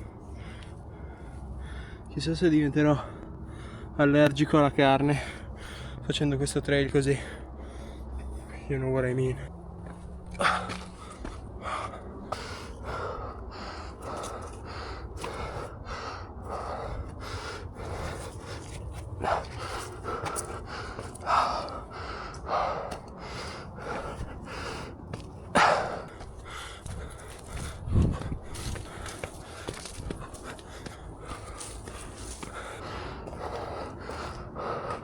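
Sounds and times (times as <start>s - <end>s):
runner panting: 0.0s - 2.1s, 2.8s - 4.4s, 5.1s - 6.0s, 7.0s - 35.0s
footfalls on dirt trail: 25.1s - 34.4s.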